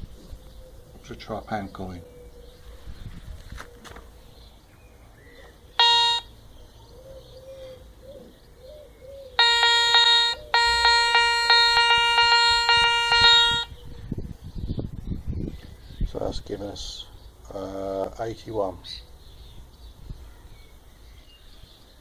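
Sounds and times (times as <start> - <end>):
metal detector beeps: 5.8 - 6.3, 9.4 - 13.7.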